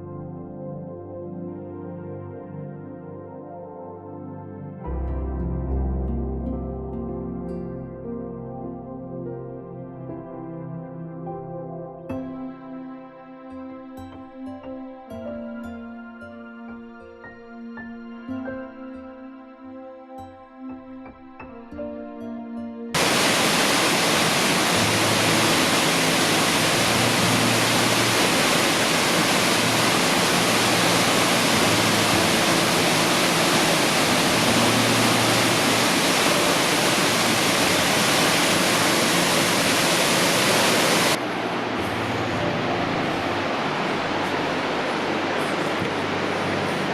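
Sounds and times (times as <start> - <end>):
soft music: 0.0 - 46.9
waterfall rushing: 23.0 - 46.9.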